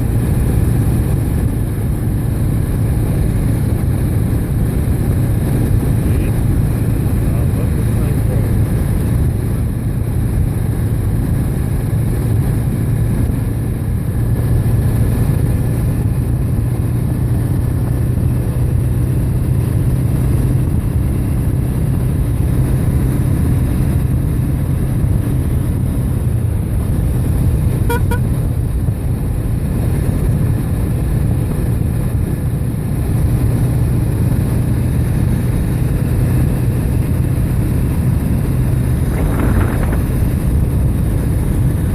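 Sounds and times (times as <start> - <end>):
road riding rumble: 0.0 - 41.9
horn toot: 27.8 - 28.4.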